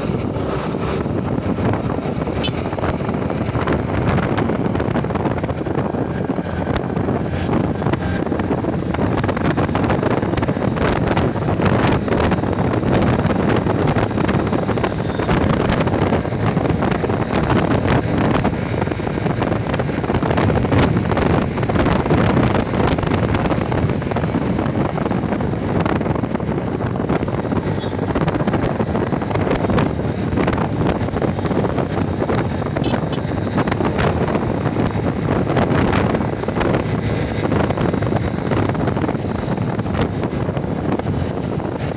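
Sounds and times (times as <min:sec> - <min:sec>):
motorcycle road and engine noise: 0:00.0 - 0:41.9
wind rushing over microphone: 0:00.0 - 0:41.9.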